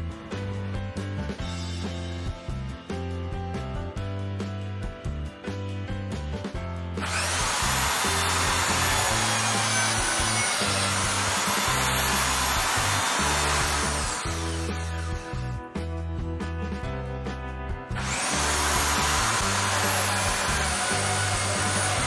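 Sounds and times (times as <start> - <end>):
background music: 0.0 - 22.0
power tool motor whining: 7.0 - 15.4, 18.0 - 22.0.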